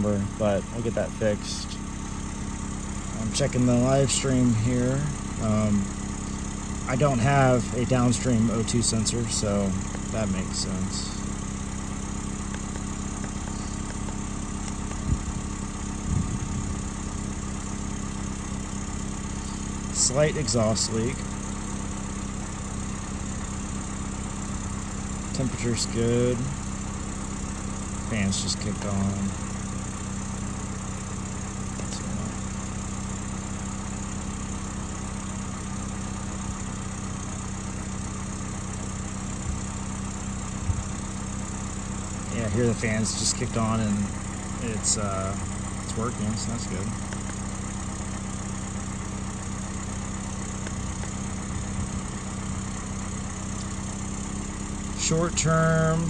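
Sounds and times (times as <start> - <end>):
car engine idling: 0.0 - 56.0
radiator cooling fan: 0.0 - 56.0
low bumps: 13.2 - 16.9.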